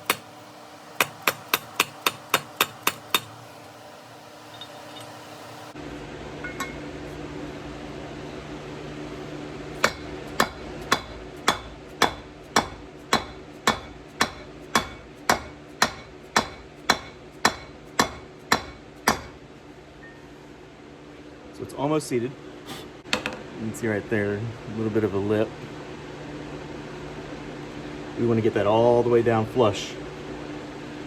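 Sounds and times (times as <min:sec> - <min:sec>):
hammer striking metal driver: 0:01.0 - 0:03.4, 0:09.8 - 0:19.4.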